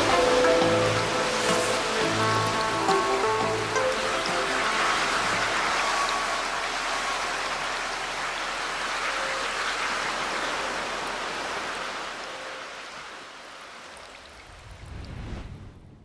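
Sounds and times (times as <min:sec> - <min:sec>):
rushing water: 0:00.0 - 0:15.6
low rumble: 0:14.5 - 0:16.0.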